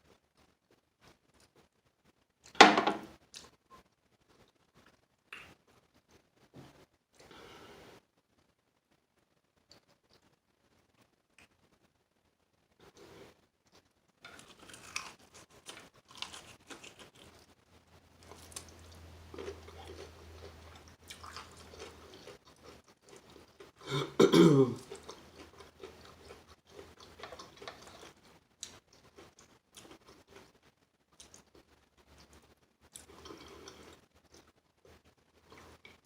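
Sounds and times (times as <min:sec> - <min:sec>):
chewing crispy chicken: 0:12.8 - 0:36.0
throat clearing: 0:23.8 - 0:24.8.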